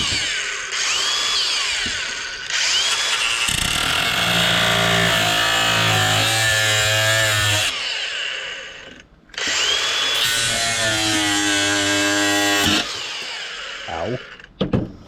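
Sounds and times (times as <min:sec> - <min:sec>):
power drill motor whine: 0:00.0 - 0:05.9, 0:07.6 - 0:11.1, 0:12.0 - 0:14.5.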